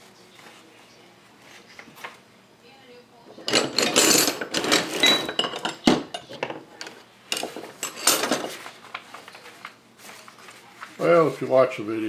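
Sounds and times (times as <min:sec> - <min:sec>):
metal parts clinking and rattling: 0:03.4 - 0:08.6.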